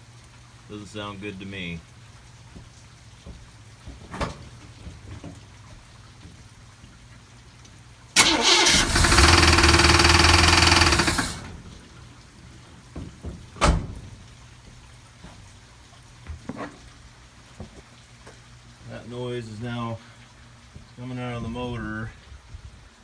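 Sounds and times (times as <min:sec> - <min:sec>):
car engine rattling: 0:08.2 - 0:12.2.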